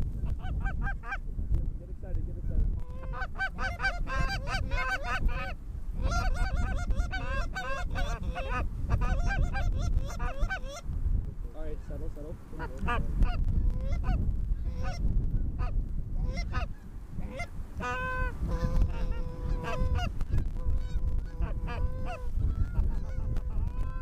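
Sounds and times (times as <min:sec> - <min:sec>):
wind rumble on microphone: 0:00.0 - 0:24.0
geese honking: 0:02.8 - 0:10.8, 0:12.6 - 0:15.0, 0:15.6 - 0:24.0.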